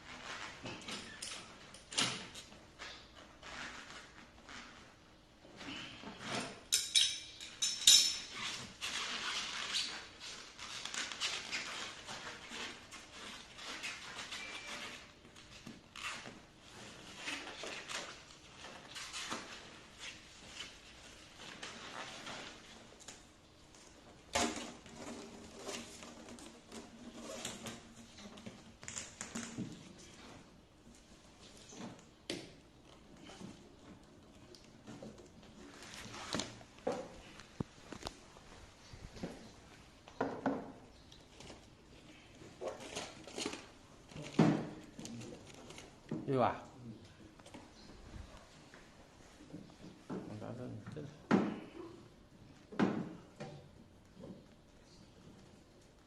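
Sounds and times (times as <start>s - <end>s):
quiet handling noises: 11.8s - 56.0s.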